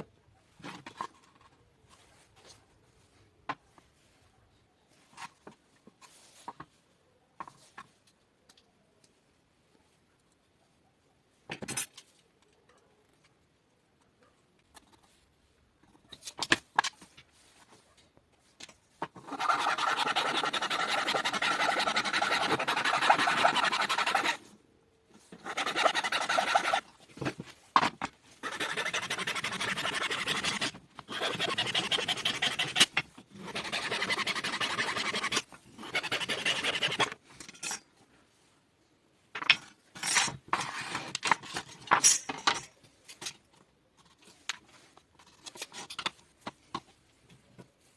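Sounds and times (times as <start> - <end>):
rough abrasive scraping: 19.2 - 24.5, 25.3 - 26.9, 28.4 - 37.2.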